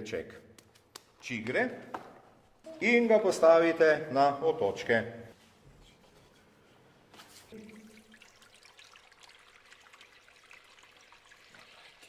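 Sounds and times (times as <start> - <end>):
water trickling: 7.5 - 12.0.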